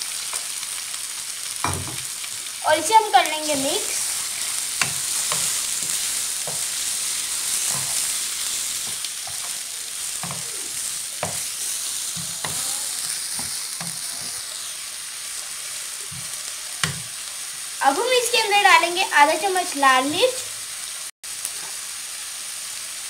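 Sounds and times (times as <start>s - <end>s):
vegetables sizzling in oil: 0.0s - 23.0s
wooden spatula knocking pan: 10.2s - 10.5s, 11.2s - 11.5s, 16.1s - 17.1s.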